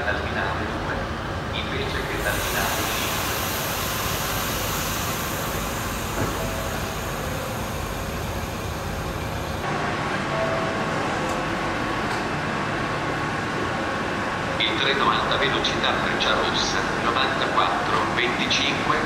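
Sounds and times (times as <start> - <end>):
train mechanical noise: 0.0 - 19.0
station hiss: 1.8 - 9.6.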